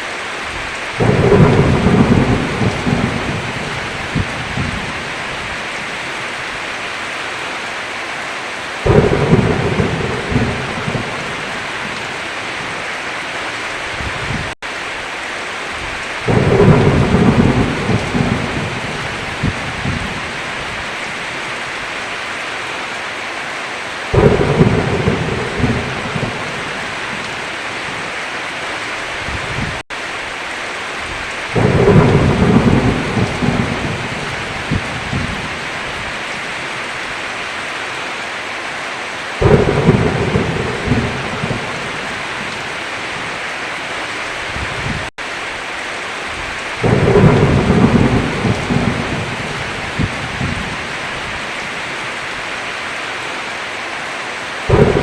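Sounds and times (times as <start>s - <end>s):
heavy rain: 0.0s - 55.0s
thunder claps: 1.0s - 5.0s, 8.8s - 12.2s, 16.2s - 20.7s, 24.1s - 28.0s, 31.1s - 36.0s, 39.4s - 43.3s, 46.8s - 50.9s, 54.7s - 55.0s.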